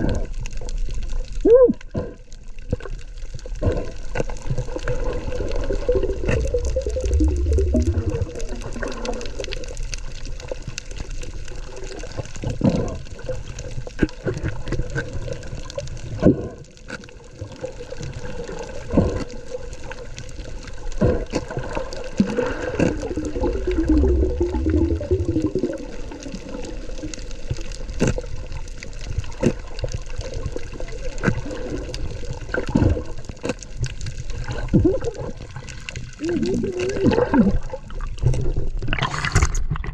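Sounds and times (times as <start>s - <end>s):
underwater water noise: 0.0s - 39.9s
fish biting and scraping coral: 1.8s - 10.4s, 11.2s - 39.9s
gurgling: 3.4s - 9.9s, 11.5s - 15.5s, 17.6s - 19.9s, 20.6s - 28.5s, 29.2s - 33.3s, 34.2s - 39.9s.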